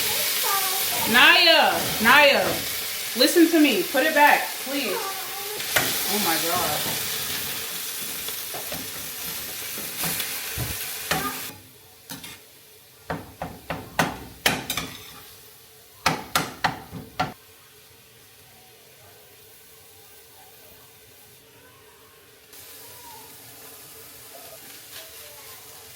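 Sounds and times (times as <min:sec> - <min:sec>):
food sizzling in a pan: 0:00.0 - 0:25.9
utensil knocking against dishes: 0:13.1 - 0:14.7, 0:16.0 - 0:17.4.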